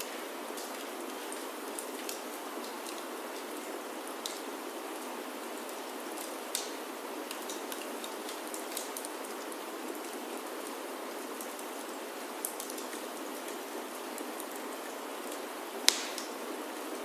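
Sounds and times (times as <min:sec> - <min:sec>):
rain falling on a roof: 0:00.0 - 0:17.0
sharp ticks and crackles: 0:06.2 - 0:09.2.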